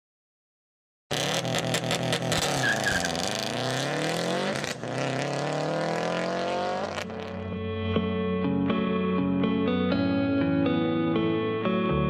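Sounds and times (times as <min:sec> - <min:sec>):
car engine revving: 0:01.1 - 0:07.5
electric guitar music: 0:04.4 - 0:12.0.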